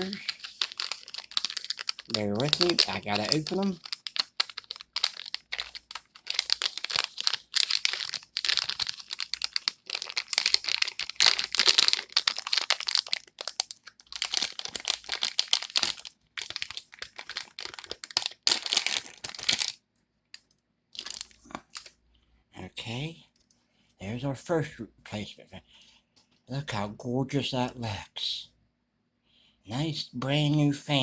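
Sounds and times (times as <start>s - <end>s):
packaging crinkling: 0.0s - 19.8s, 21.0s - 21.9s.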